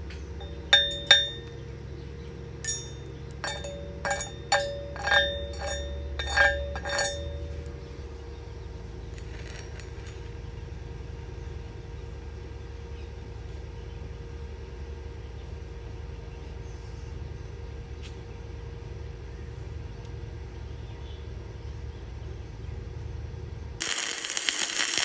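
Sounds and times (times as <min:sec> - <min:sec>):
steady low hum: 0:00.0 - 0:13.4
hammer striking steel plate: 0:00.4 - 0:01.5, 0:02.7 - 0:07.7.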